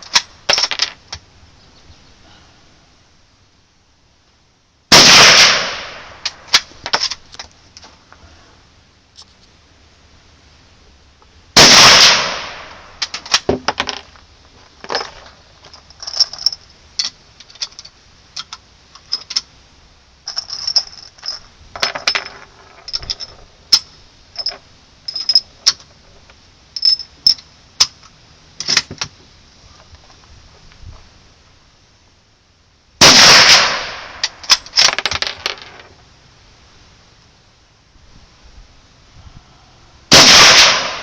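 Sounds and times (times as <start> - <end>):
rifle shot: 4.9 - 6.7, 11.6 - 13.0, 33.0 - 34.4, 40.1 - 41.0.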